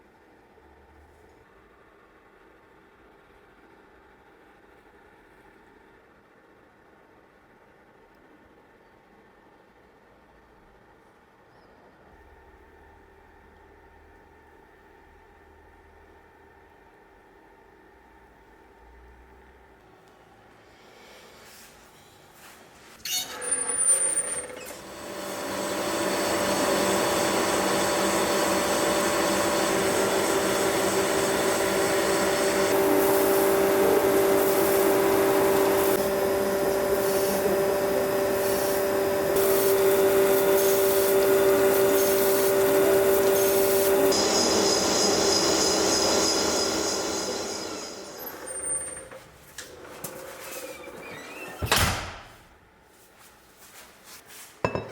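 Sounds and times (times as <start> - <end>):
power tool whining: 23.1 - 51.7.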